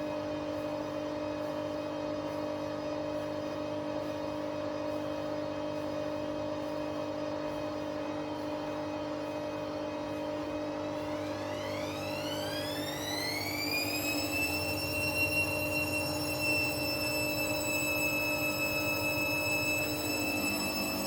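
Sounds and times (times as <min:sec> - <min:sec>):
washing machine spinning: 0:00.0 - 0:21.0
motor whine rising in pitch: 0:10.5 - 0:21.0.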